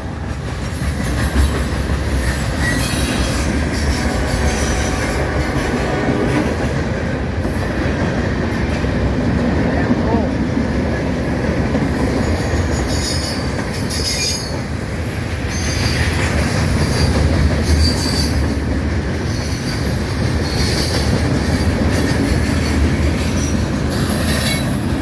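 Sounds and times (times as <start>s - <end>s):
train wheels rumbling on rail: 0.0s - 25.0s
high-pitched wheel squeals: 12.9s - 14.6s.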